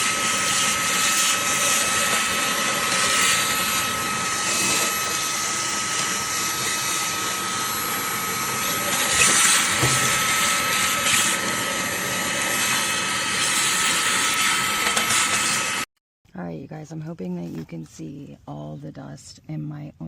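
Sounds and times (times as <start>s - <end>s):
handheld vacuum whirring: 0.0s - 15.9s.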